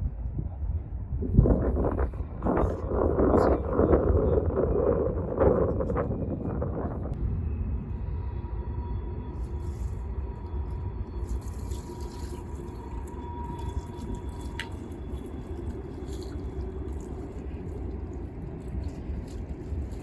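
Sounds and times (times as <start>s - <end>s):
low rumble: 0.0s - 20.0s
water trickling and dripping: 11.2s - 20.0s.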